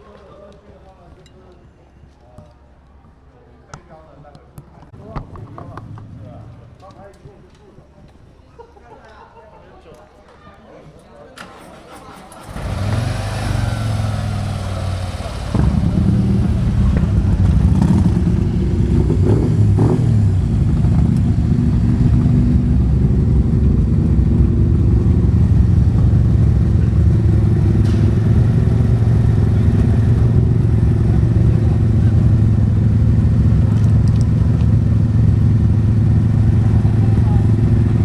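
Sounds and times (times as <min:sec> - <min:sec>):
motorcycle engine running: 0:12.5 - 0:38.0.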